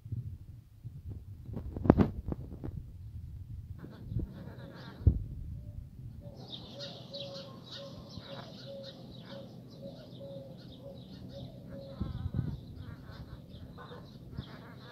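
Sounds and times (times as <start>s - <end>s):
pulsing low hum: 0.0s - 14.9s
small birds chirping: 5.7s - 14.9s.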